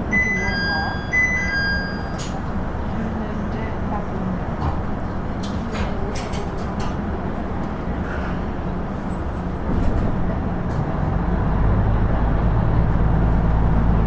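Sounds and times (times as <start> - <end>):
railcar running noise: 0.0 - 14.0
diesel engine drone: 7.3 - 14.0.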